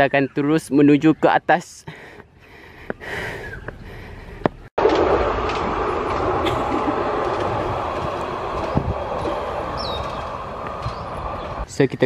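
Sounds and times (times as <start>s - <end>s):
funicular train rumbling on rails: 4.8s - 11.8s.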